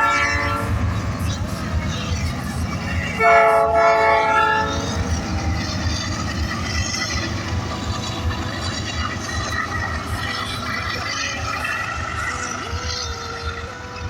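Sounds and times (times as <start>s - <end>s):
train horn blast: 0.0s - 1.0s, 3.2s - 5.0s
passing train rumble: 0.0s - 14.0s.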